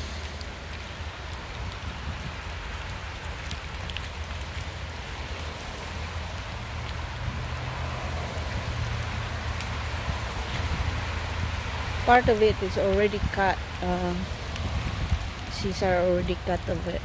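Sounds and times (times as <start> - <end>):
light rain falling on leaves: 0.0 - 17.0
raindrop ticks: 0.0 - 17.0.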